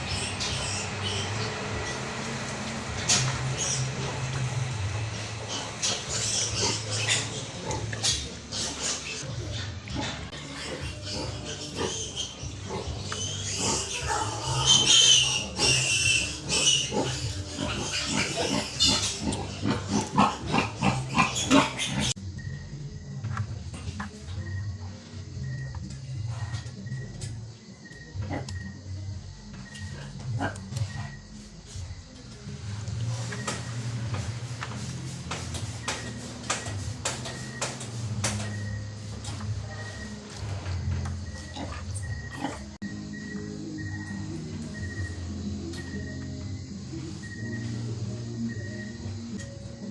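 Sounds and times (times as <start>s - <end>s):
piglets grunting: 0.0s - 22.2s, 29.7s - 31.2s, 33.1s - 42.8s
piglets squealing: 0.0s - 22.2s.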